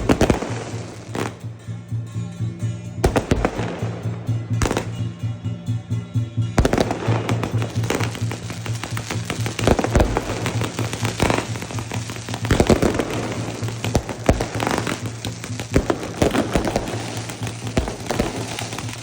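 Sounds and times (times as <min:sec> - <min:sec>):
firework bangs: 0:00.0 - 0:01.7, 0:03.0 - 0:05.3, 0:06.5 - 0:19.0
fireworks crackling: 0:00.0 - 0:19.0.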